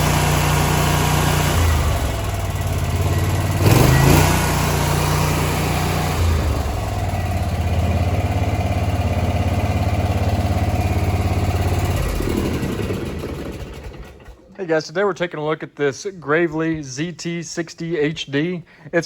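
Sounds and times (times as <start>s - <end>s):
mower engine running: 0.0s - 14.5s.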